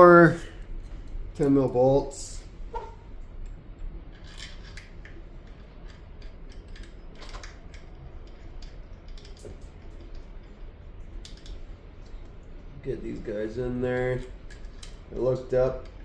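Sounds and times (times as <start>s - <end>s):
metal parts and tools clicking: 3.4s - 11.6s.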